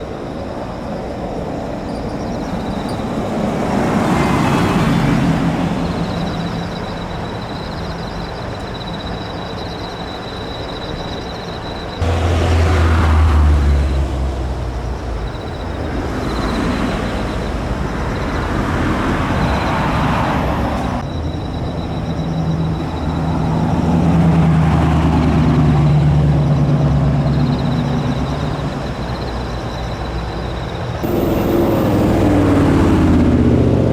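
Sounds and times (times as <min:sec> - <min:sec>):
cars driving past: 0:02.9 - 0:07.7, 0:12.0 - 0:33.9.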